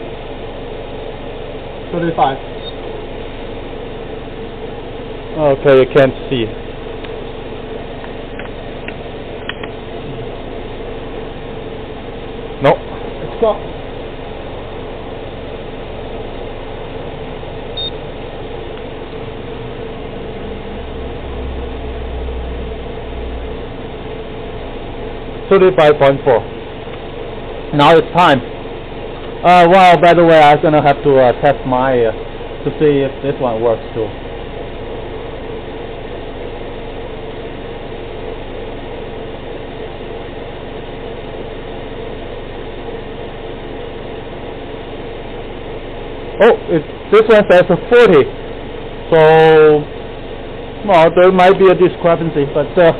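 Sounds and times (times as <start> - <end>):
car engine idling: 0.0 - 52.9
short high beep: 17.8 - 18.0.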